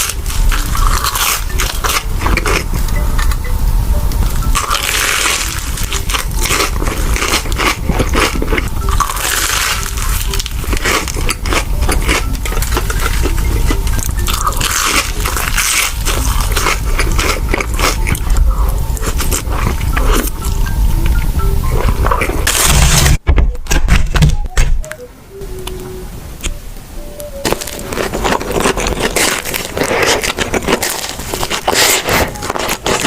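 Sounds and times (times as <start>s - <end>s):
crunchy bites and chewing: 0.0s - 3.4s, 4.5s - 18.4s, 27.4s - 33.0s.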